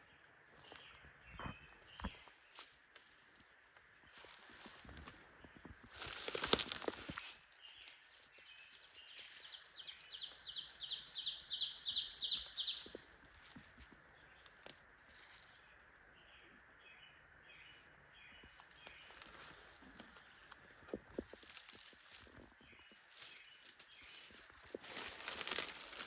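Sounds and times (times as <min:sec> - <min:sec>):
faint bird chirps: 0:07.3 - 0:13.0
songbird trilling: 0:09.2 - 0:13.0.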